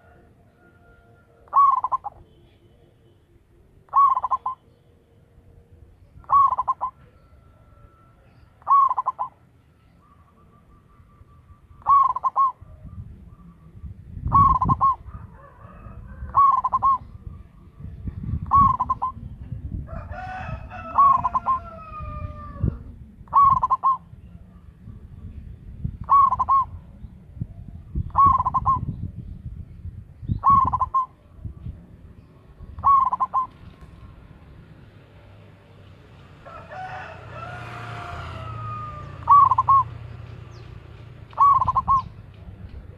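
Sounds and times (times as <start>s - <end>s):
rooster crowing: 0.0s - 1.6s, 15.0s - 16.6s, 19.9s - 22.8s, 36.4s - 39.8s
dove cooing: 0.0s - 2.6s, 3.7s - 4.8s, 5.9s - 9.4s, 10.0s - 24.8s, 25.9s - 27.0s, 27.7s - 29.1s, 30.2s - 34.2s, 36.5s - 40.2s, 41.3s - 42.3s.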